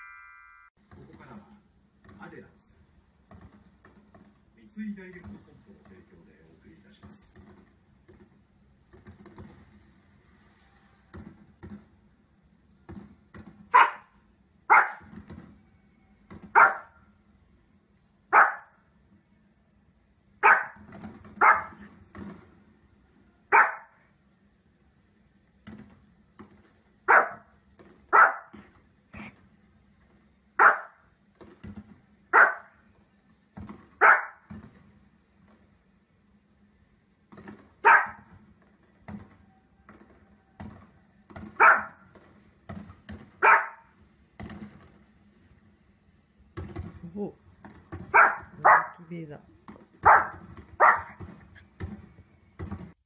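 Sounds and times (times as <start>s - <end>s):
small dog barking: 13.7s - 15.1s, 16.5s - 17.0s, 18.3s - 18.8s, 20.4s - 20.8s, 21.4s - 21.8s, 23.5s - 24.0s, 27.1s - 27.5s, 28.1s - 28.6s, 30.6s - 31.0s, 32.3s - 32.8s, 34.0s - 34.5s, 37.8s - 38.3s, 41.6s - 42.0s, 43.4s - 43.9s, 48.1s - 49.0s, 50.0s - 51.2s.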